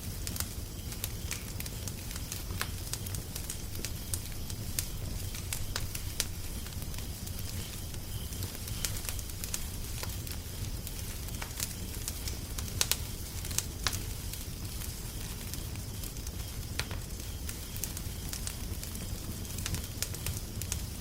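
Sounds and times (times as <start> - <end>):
steady low rumble: 0.0 - 11.2
wood fire crackling and popping: 0.0 - 21.0.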